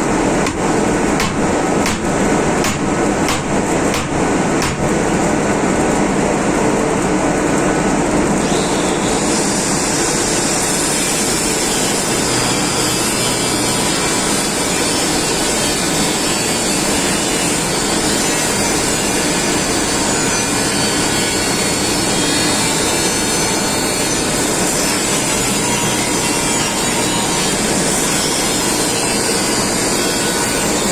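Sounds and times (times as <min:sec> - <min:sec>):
power tool running: 0:08.4 - 0:30.9.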